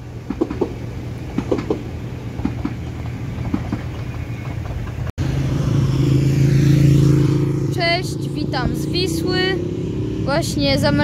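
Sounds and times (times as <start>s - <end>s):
low engine hum: 0.0s - 11.0s
train wheels clacking over rail joints: 0.2s - 5.1s.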